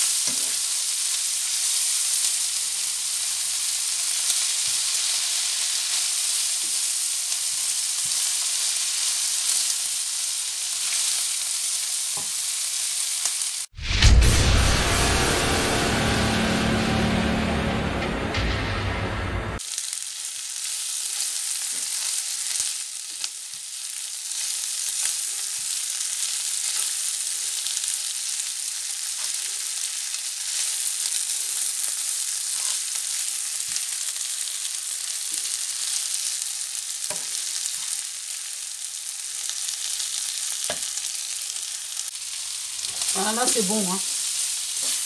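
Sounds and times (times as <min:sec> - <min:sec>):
food sizzling in a frying pan: 0:00.0 - 0:13.8, 0:19.6 - 0:45.0
spatula scraping and tapping pan: 0:37.1 - 0:37.4.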